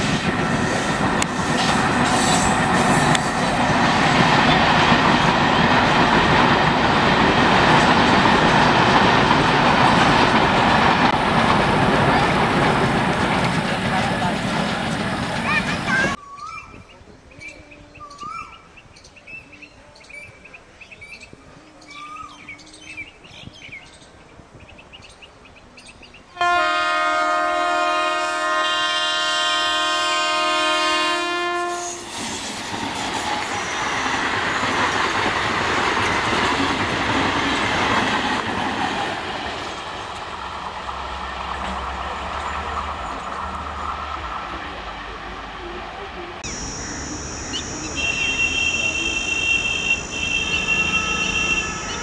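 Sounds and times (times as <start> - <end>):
train wheel rumble: 0.0 - 16.2, 26.4 - 52.0
train horn blast: 26.4 - 32.2, 46.4 - 52.0
faint bird chirps: 46.4 - 52.0.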